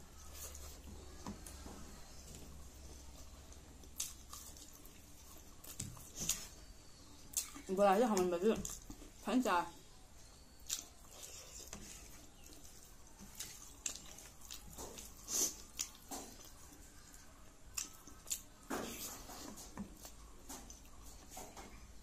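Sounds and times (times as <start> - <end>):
person chewing: 2.5 - 7.7, 10.6 - 21.4.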